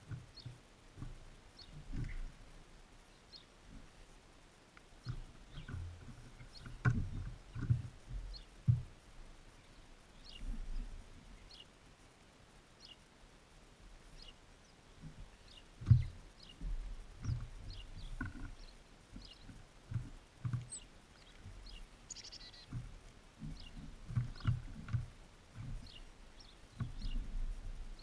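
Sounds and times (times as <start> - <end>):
birds pecking and landing thumps: 0.0 - 2.5, 5.0 - 9.1, 15.0 - 27.8
bird faint high chirps: 20.7 - 22.7.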